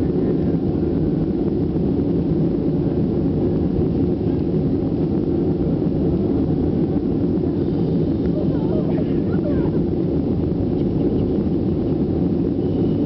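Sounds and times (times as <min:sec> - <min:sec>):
jet engine cabin rumble: 0:00.0 - 0:13.0.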